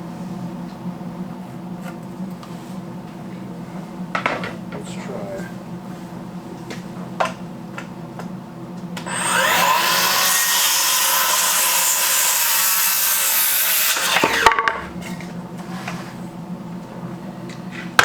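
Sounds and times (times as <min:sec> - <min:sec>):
saw cutting wooden board: 0:09.0 - 0:14.6
power saw whine: 0:09.0 - 0:14.8.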